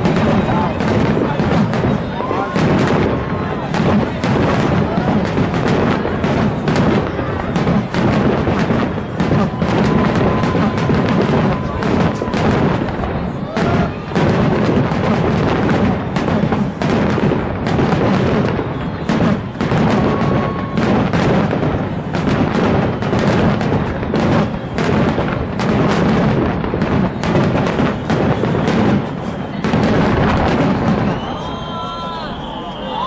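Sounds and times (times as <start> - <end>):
fireworks booming: 0.0 - 33.0.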